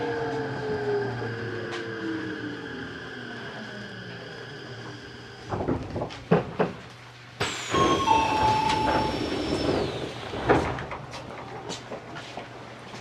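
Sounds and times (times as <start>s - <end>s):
station platform noise: 0.0s - 13.0s
high whine: 7.4s - 10.7s.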